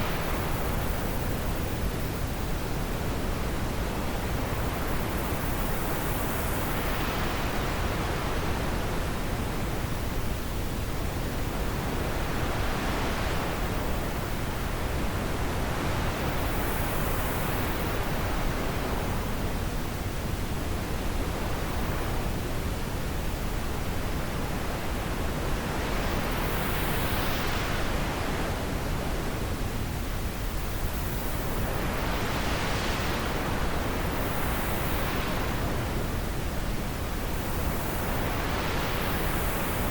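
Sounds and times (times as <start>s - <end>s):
wind blowing in gusts: 0.0s - 39.9s.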